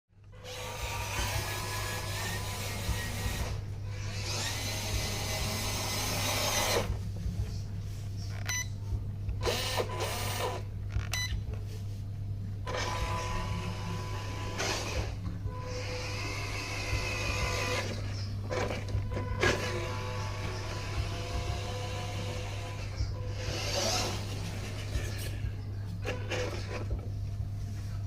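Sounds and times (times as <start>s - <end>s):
toy car electric motor whining: 0.4s - 6.9s, 12.7s - 25.1s.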